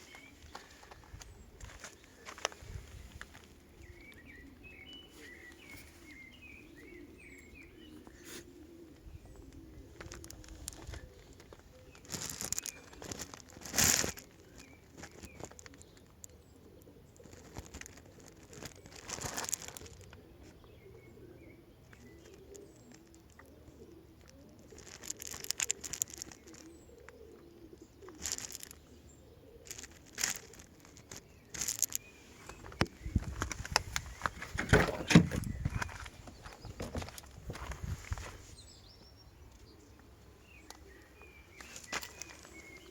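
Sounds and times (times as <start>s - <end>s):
faint bird cooing: 0.0s - 38.3s, 39.6s - 42.9s
knocks and clicks: 32.8s - 35.9s.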